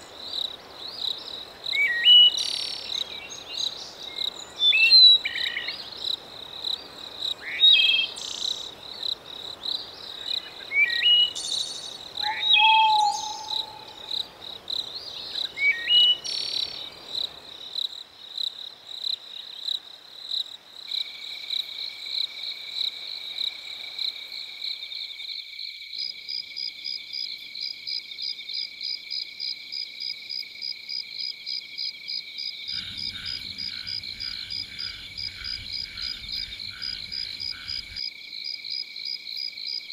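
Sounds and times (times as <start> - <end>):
insect trills: 0.0 - 19.8, 30.3 - 39.9
crickets trilling: 0.0 - 39.9
frogs croaking: 0.0 - 39.9
short bird calls: 12.2 - 14.2.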